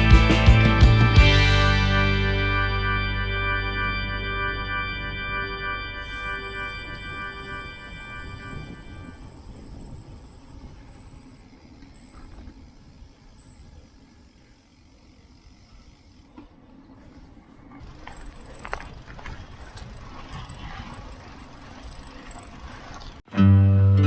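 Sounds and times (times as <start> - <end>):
acoustic guitar music: 0.0 - 8.8, 23.3 - 24.0
road noise rumble: 3.0 - 23.3.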